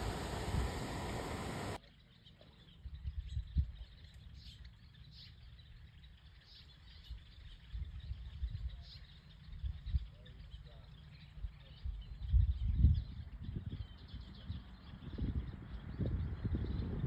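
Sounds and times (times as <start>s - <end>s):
low wind rumble: 0.0s - 1.8s, 11.8s - 17.0s
steady rushing hiss: 0.0s - 1.8s
faint bird chirps: 0.0s - 17.0s.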